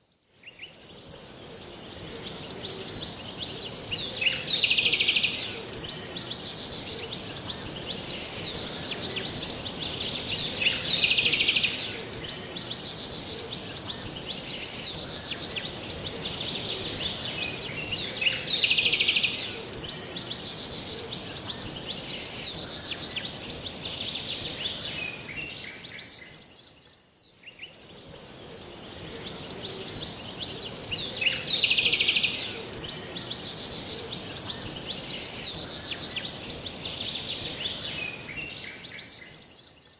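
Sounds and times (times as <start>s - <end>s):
steady high hiss: 0.4s - 26.6s.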